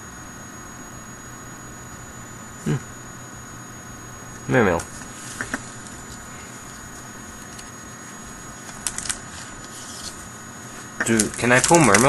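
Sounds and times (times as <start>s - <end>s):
electrical hum: 0.0s - 12.0s
cards clicking: 8.6s - 10.2s, 11.0s - 12.0s.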